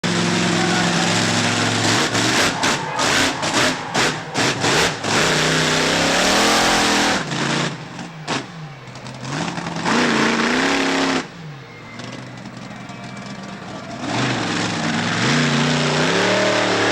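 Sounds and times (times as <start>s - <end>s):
monster truck engine revving: 0.0s - 16.9s.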